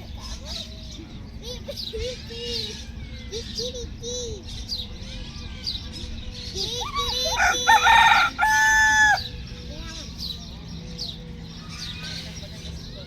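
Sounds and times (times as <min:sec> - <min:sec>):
small birds chirping: 0:00.0 - 0:13.0
rooster crowing: 0:07.3 - 0:09.4.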